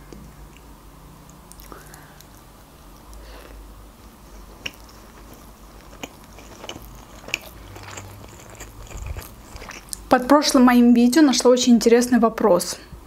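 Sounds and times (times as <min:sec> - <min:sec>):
person chewing food: 0:00.1 - 0:10.1.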